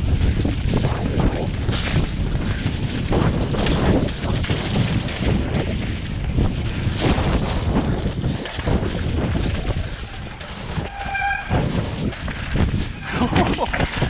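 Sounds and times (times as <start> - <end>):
mountain bike rattling over trail: 0.0 - 14.0
high squeal: 10.8 - 11.6.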